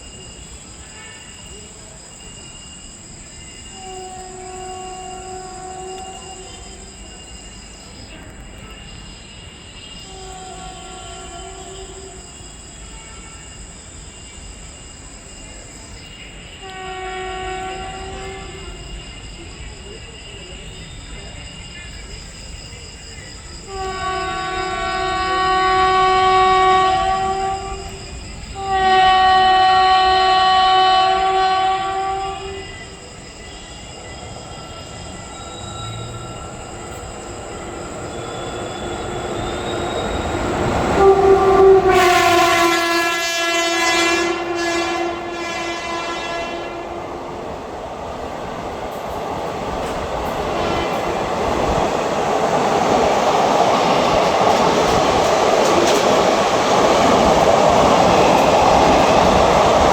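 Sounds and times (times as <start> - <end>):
train rumble and wheel clatter: 0.0 - 59.9
train horn blasts: 0.8 - 1.7, 3.6 - 7.5, 9.9 - 13.7, 16.5 - 19.1, 23.6 - 47.3, 49.8 - 51.3.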